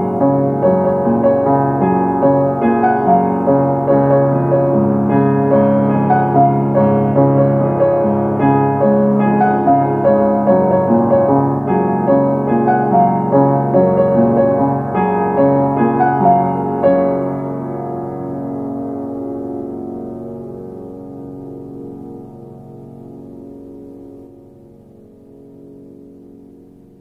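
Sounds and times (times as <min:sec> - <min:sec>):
gentle piano melody: 0:00.0 - 0:27.0.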